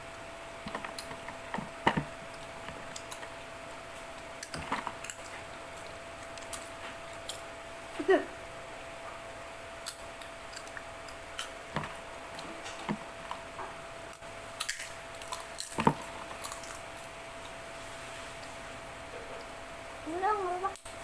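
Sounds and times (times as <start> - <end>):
faint steady hum: 0.0 - 21.0
chewing crunches and taps: 0.6 - 7.4.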